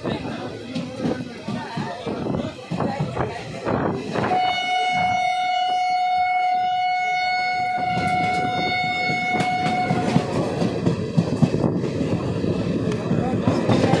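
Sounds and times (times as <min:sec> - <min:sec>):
moving train rumble: 0:00.0 - 0:14.0
train horn blast: 0:04.2 - 0:10.4.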